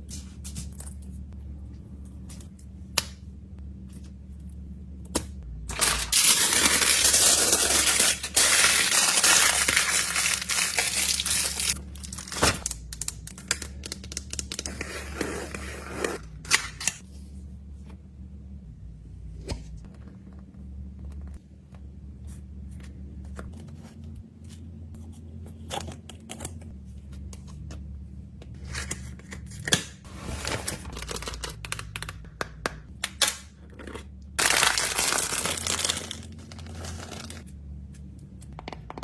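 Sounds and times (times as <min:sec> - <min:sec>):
dense plastic rustling: 0:05.7 - 0:12.7, 0:34.4 - 0:37.4.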